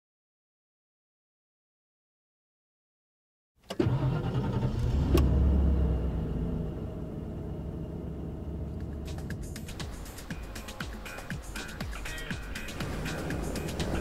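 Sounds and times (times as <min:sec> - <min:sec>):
car engine starting and idling: 0:03.6 - 0:14.0.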